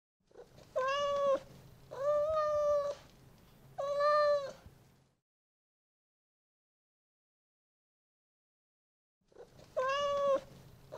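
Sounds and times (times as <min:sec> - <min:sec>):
cat meowing: 0:00.4 - 0:03.1, 0:03.8 - 0:04.6, 0:09.4 - 0:10.5.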